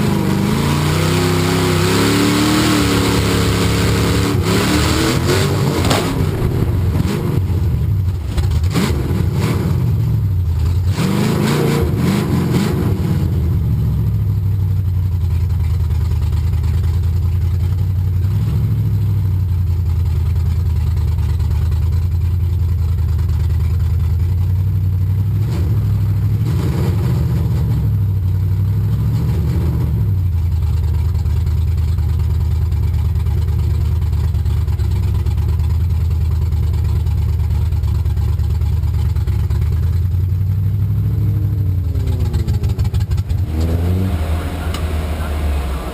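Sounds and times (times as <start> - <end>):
truck engine revving: 0.0 - 14.2, 25.3 - 28.0, 40.4 - 45.9.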